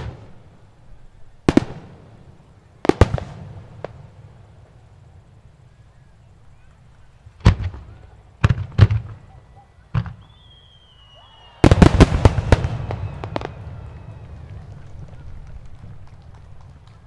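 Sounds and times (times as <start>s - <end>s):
firework whistle: 5.7s - 17.0s
firework shells bursting: 9.9s - 17.0s.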